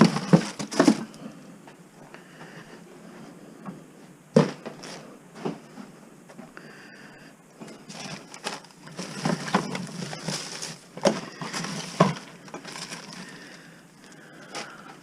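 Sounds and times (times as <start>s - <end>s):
rustling and clattering: 0.0s - 1.2s, 7.6s - 15.0s.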